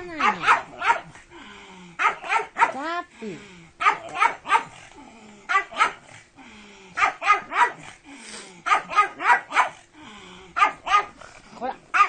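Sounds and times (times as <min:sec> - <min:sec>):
dog barking: 0:00.0 - 0:01.2, 0:02.0 - 0:02.8, 0:03.8 - 0:04.8, 0:05.5 - 0:06.1, 0:07.0 - 0:07.9, 0:08.6 - 0:09.8, 0:10.6 - 0:11.2.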